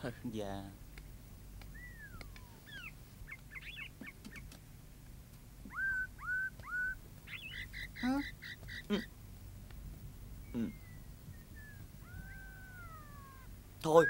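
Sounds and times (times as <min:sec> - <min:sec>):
bird whistling: 0:01.7 - 0:04.5, 0:05.7 - 0:09.1, 0:10.4 - 0:14.0
quick high bird chirps: 0:01.7 - 0:04.5, 0:05.7 - 0:09.0, 0:10.5 - 0:14.0.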